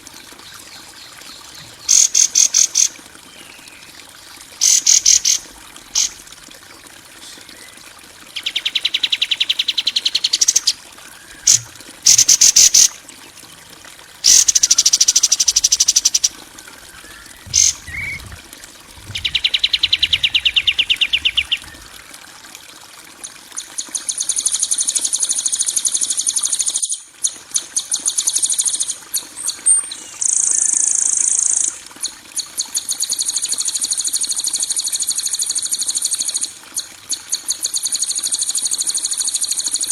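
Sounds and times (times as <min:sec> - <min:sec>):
songbird rattling trills: 0:04.6 - 0:05.4, 0:06.0 - 0:06.2, 0:11.4 - 0:12.9, 0:14.2 - 0:21.9.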